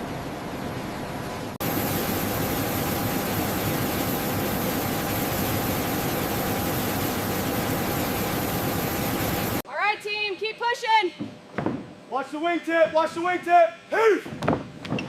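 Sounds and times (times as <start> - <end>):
steady machine noise: 0.0 - 9.6.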